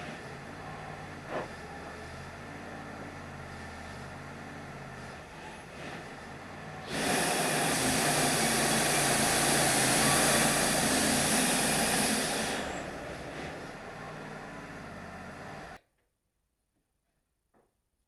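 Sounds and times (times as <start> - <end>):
engine running: 0.0 - 15.8
band saw cutting log: 6.9 - 13.5.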